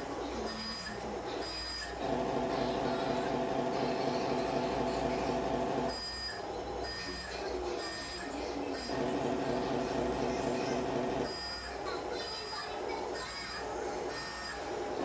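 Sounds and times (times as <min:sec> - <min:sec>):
model truck mechanical hum: 0:02.0 - 0:05.9, 0:08.9 - 0:11.3.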